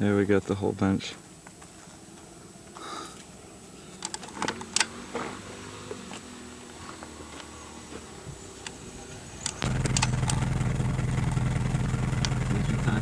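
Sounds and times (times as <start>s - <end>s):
faint clicks: 3.9s - 4.9s, 9.4s - 13.0s
engine humming: 4.4s - 13.0s.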